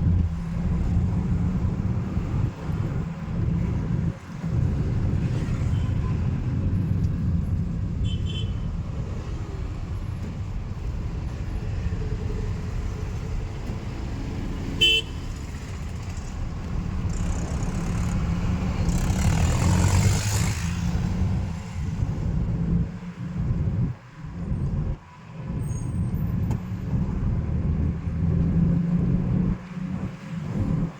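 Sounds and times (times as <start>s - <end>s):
traffic rumble: 0.0s - 30.9s
vehicle passing loudly: 15.4s - 22.8s.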